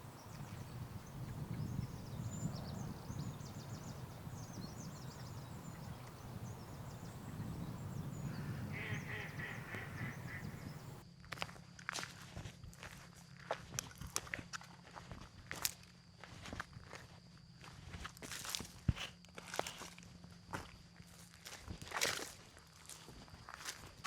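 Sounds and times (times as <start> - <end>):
forest birds calling: 0.0 - 11.0
repeated nasal bird notes: 0.0 - 11.0.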